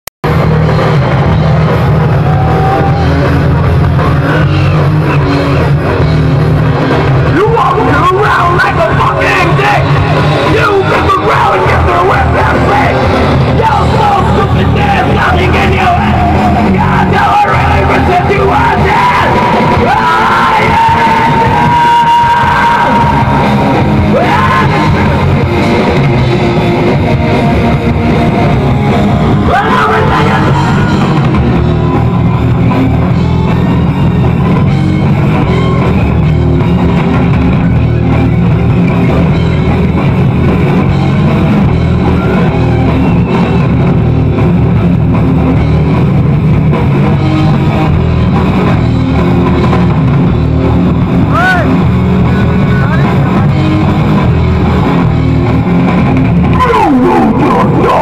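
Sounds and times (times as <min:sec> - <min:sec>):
electric guitar: 0:00.2 - 0:58.0
heavy rock rhythm: 0:00.2 - 0:58.0
person shouting vocals: 0:29.4 - 0:31.1.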